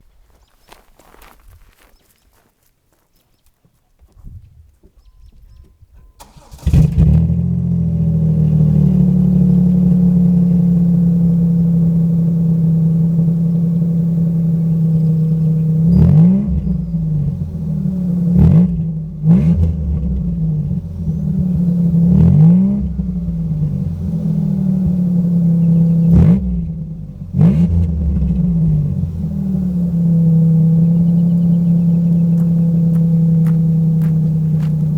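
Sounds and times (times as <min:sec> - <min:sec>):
car engine idling and revving: 0:06.2 - 0:34.9
car engine starting: 0:06.2 - 0:34.9.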